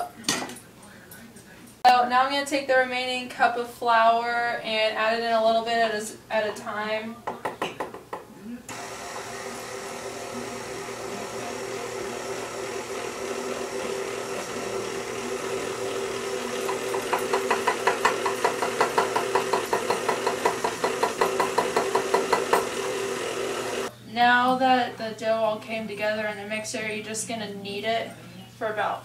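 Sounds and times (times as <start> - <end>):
stand mixer running: 8.7 - 23.9
dough knocking in bowl: 16.6 - 22.7.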